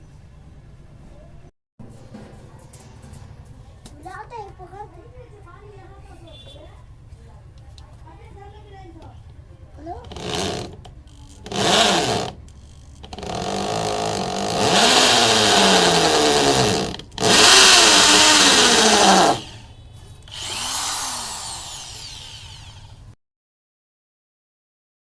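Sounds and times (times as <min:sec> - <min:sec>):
hammer drill motor whining: 0:10.0 - 0:19.7, 0:20.3 - 0:23.1.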